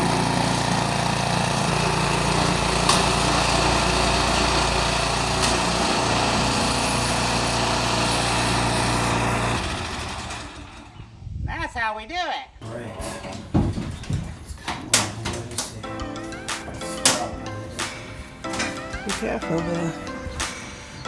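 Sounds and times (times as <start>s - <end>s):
snow blower engine running: 0.0s - 11.0s.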